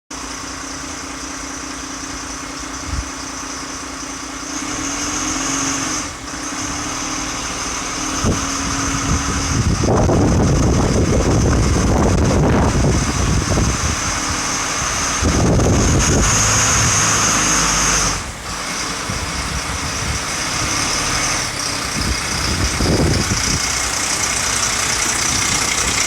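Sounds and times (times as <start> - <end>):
diesel engine idling: 0.1 - 26.0
loud rough noise: 0.1 - 26.0.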